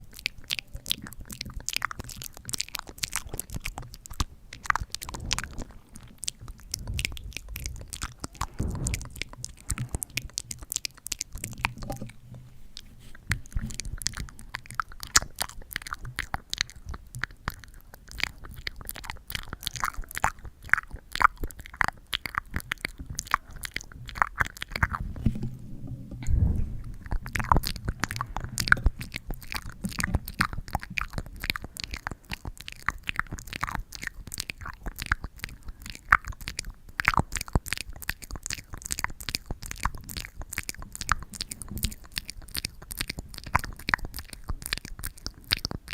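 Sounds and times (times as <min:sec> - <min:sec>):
sticky crackles and pops: 0:00.0 - 0:45.9
low handling rumbles: 0:24.8 - 0:30.5.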